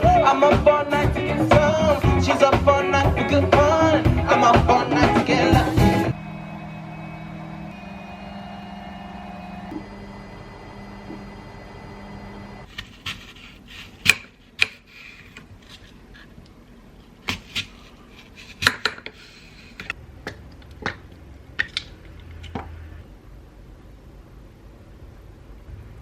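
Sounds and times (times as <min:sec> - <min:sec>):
steady hum: 0:03.2 - 0:12.7.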